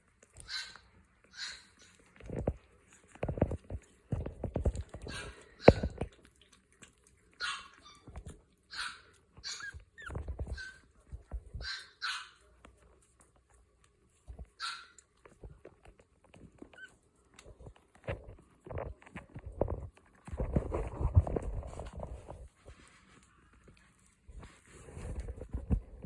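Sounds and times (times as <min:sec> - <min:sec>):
puppies yipping and barking: 0:00.2 - 0:02.2, 0:04.8 - 0:06.2, 0:07.2 - 0:12.5, 0:14.4 - 0:15.2, 0:16.5 - 0:17.1.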